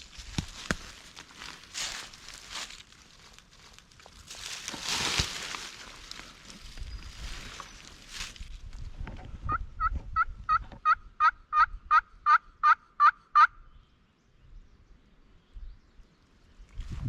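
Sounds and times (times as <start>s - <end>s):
turkey yelps: 9.5s - 13.6s.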